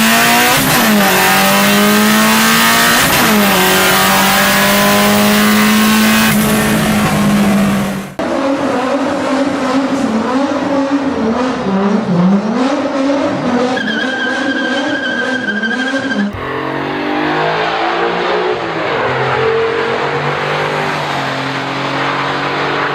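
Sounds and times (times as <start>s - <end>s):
car engines revving: 0.0s - 22.9s.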